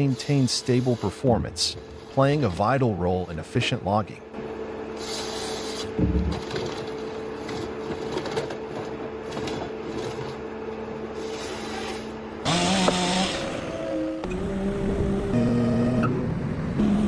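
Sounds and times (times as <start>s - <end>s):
harvester machine humming: 0.0s - 17.0s.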